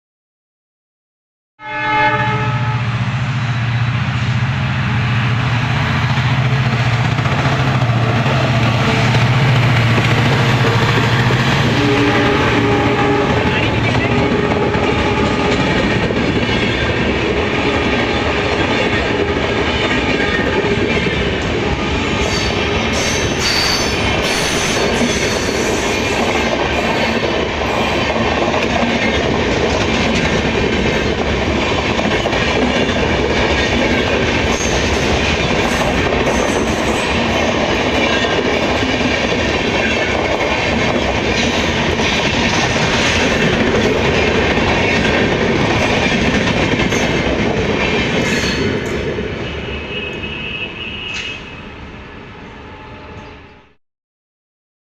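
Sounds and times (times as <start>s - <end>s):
train wheels rumbling on rails: 2.9s - 51.3s
clickety-clack over rail joints: 22.9s - 49.0s.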